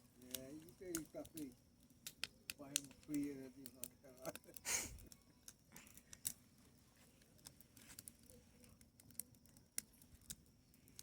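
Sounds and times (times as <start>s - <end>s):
bonfire crackling and popping: 0.0s - 11.0s.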